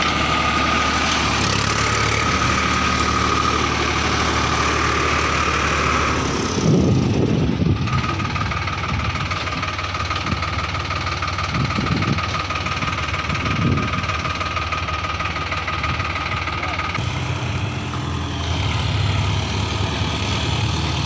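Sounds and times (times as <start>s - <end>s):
heavy diesel engines running: 0.0s - 21.0s
steady high whine: 17.0s - 21.0s.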